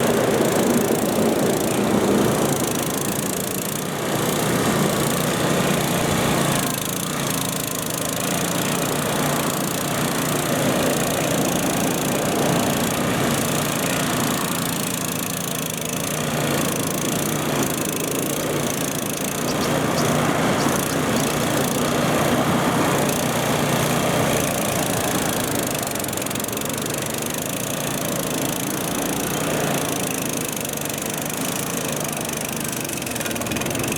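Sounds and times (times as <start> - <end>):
small engine running: 0.0 - 33.9.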